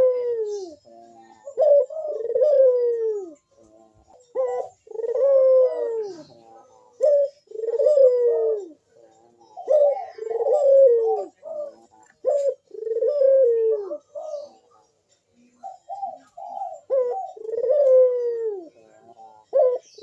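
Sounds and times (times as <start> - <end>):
dove cooing: 0.0 - 20.0.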